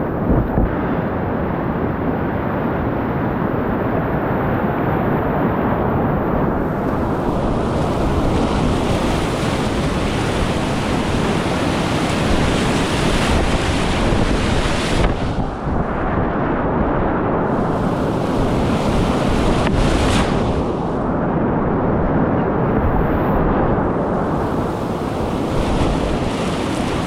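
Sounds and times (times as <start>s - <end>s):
wind noise on microphone: 0.0s - 27.0s
whitewater rapids rushing: 6.9s - 15.4s, 24.1s - 27.0s.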